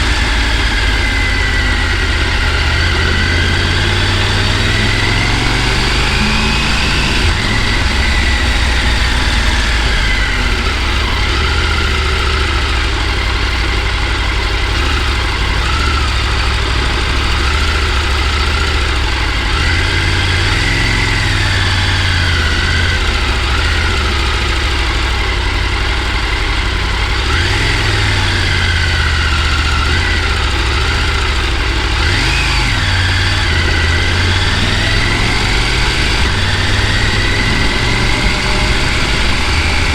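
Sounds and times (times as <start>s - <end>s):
car engine running: 0.0s - 39.9s
road noise: 0.0s - 39.9s.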